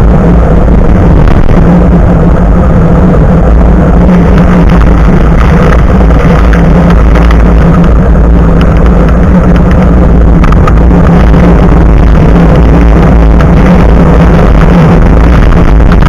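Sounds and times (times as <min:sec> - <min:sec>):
road rumble: 0:00.0 - 0:16.0
wind buffeting microphone: 0:00.0 - 0:16.0.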